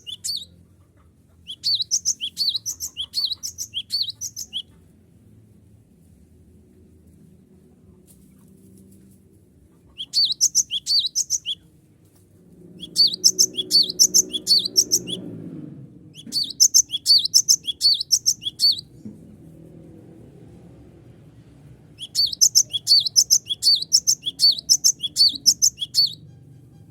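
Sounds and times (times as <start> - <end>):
bird singing high sharp notes: 0.0 - 0.5, 1.5 - 4.6, 10.1 - 11.6, 12.8 - 15.3, 16.2 - 18.9, 22.0 - 26.3.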